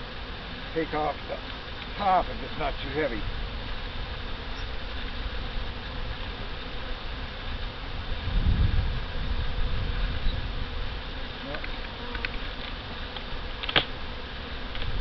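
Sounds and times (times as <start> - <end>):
bees buzzing: 0.0 - 15.0
sharp click: 13.6 - 13.9.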